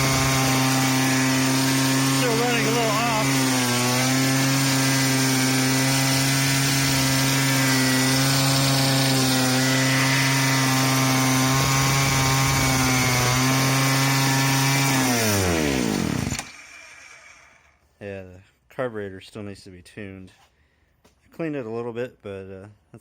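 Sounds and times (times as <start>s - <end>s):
two-stroke scooter engine revving: 0.0s - 16.7s.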